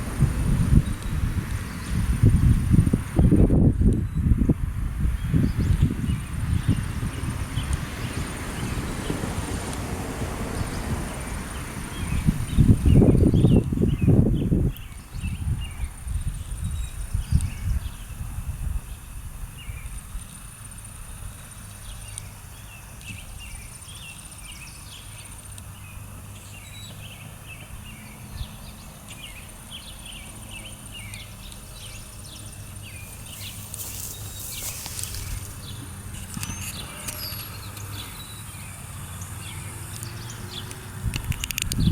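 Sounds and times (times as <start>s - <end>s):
steady low rumble: 0.0s - 22.1s
small birds chirping: 0.4s - 9.4s, 10.6s - 41.9s.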